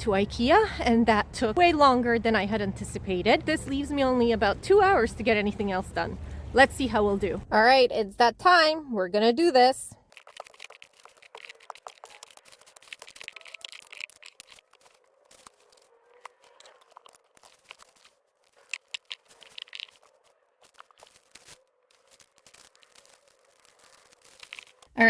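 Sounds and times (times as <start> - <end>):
papers rustling and crinkling: 10.0 - 25.0.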